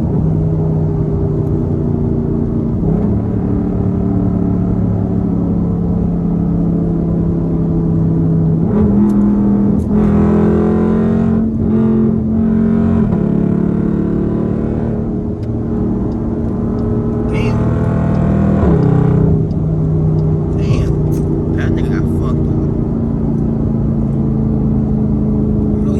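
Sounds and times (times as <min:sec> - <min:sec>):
car exhaust droning: 0:15.2 - 0:25.9.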